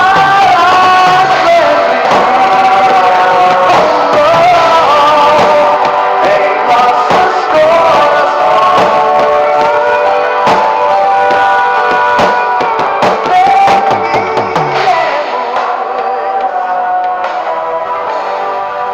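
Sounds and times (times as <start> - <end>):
drums: 0.0 - 18.9
guitar chords: 0.0 - 18.9
person singing a hymn: 0.0 - 18.9.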